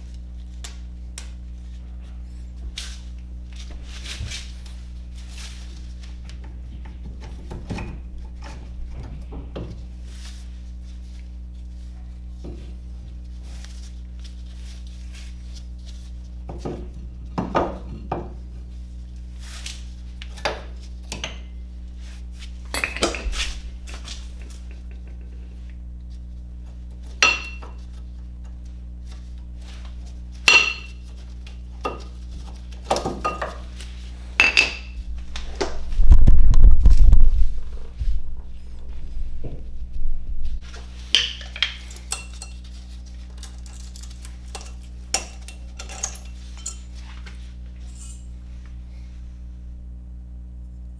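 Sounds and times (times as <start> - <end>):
steady low hum: 0.0 - 50.9
metal tools clinking: 27.1 - 27.8, 41.4 - 47.1, 47.8 - 48.3
low rumbling thud: 35.0 - 40.6.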